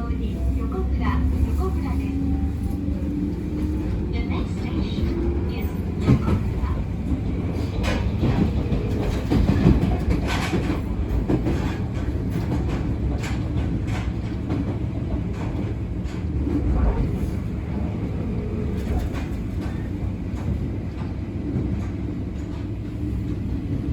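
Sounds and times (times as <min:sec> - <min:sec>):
train wheels rumbling on rails: 0:00.0 - 0:23.9
wheels clacking over rail joints: 0:02.9 - 0:21.1.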